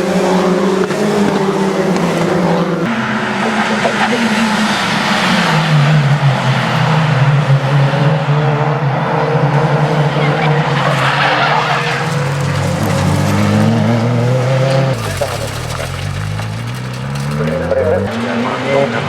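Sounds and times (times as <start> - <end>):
race car engine running hard: 0.0 - 19.0
tyres squealing: 10.1 - 18.3.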